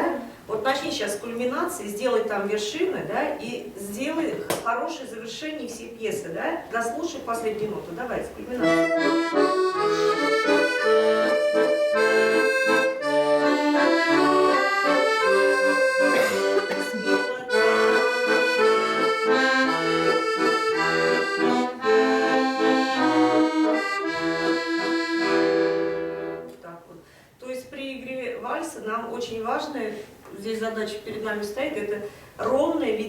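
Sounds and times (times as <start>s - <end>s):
accordion playing a waltz: 8.6s - 26.6s.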